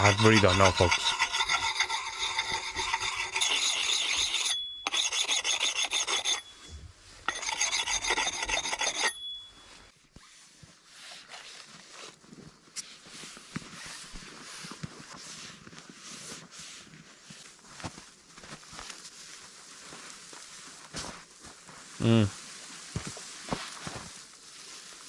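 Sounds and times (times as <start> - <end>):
harsh rasping scraping strokes: 0.0 - 9.3.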